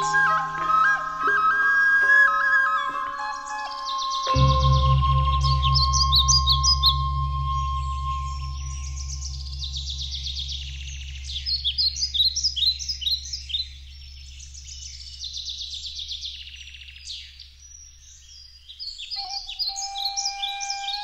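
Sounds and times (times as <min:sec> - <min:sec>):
birds singing with trills: 0:00.0 - 0:21.0
held musical tone: 0:04.2 - 0:14.6
low steady drone: 0:04.3 - 0:16.2.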